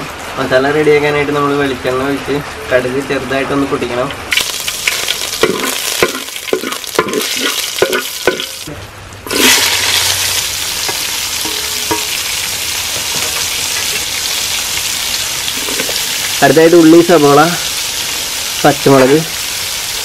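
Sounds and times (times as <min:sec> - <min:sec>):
onions sizzling in oil: 0:04.3 - 0:20.0
seeds crackling in hot oil: 0:04.3 - 0:20.0.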